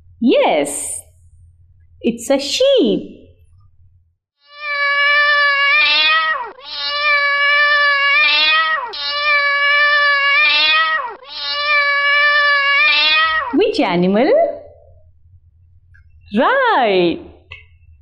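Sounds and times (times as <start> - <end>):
cat meowing: 4.4 - 13.6.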